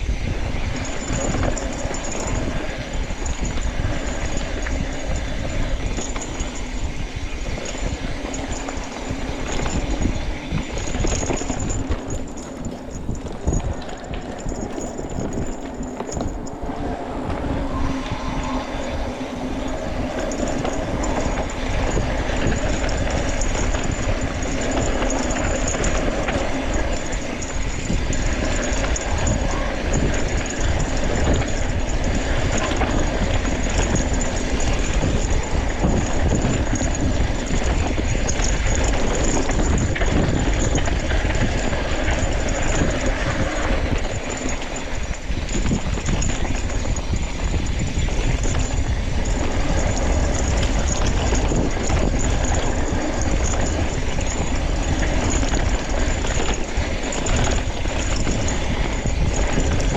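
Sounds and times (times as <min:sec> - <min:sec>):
bike chain and frame rattling: 0:00.0 - 0:59.9
tyres rumbling on rocky dirt: 0:20.2 - 0:59.9.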